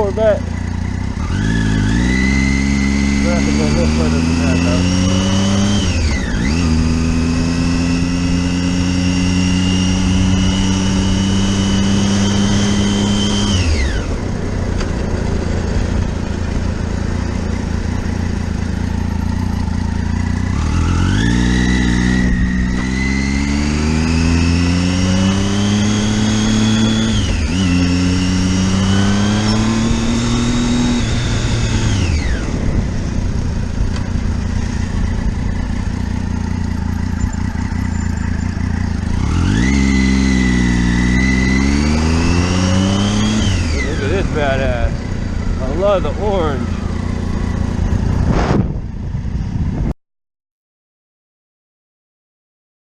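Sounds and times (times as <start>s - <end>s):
motorcycle engine revving: 0.0s - 49.9s
steady rush: 38.7s - 49.9s.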